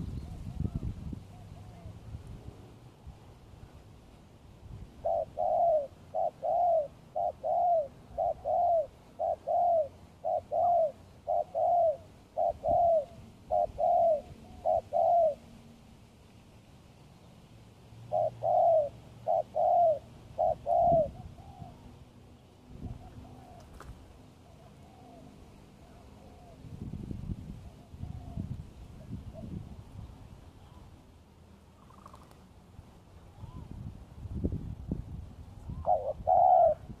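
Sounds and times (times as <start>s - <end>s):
dove cooing: 5.0s - 15.5s, 18.1s - 22.0s, 22.8s - 26.7s, 27.6s - 29.6s, 31.8s - 32.4s, 35.7s - 37.0s.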